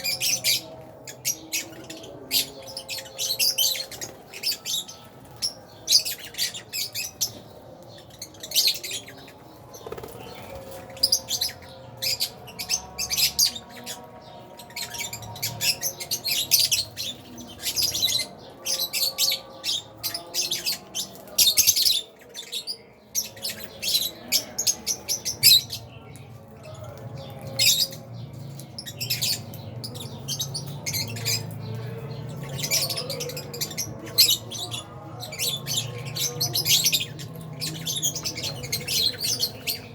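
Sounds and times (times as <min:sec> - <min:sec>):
lovebirds chirping: 0:00.0 - 0:39.9.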